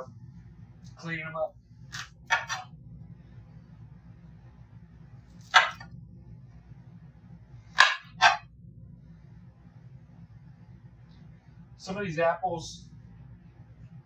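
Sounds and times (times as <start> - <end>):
faint steady hum: 0.0 - 14.0
knife crunching through apples: 5.4 - 5.8.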